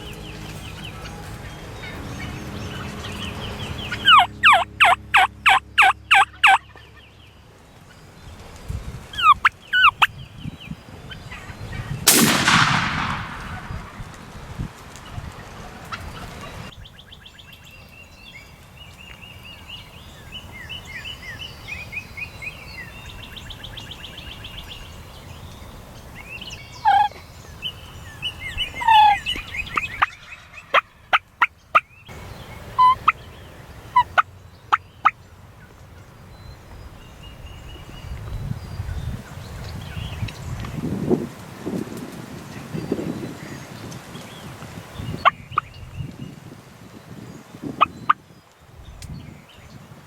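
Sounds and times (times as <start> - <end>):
turkeys gobbling: 0.0 - 7.0, 9.1 - 10.1, 26.8 - 27.2, 28.7 - 31.9, 32.8 - 33.2, 33.9 - 34.3.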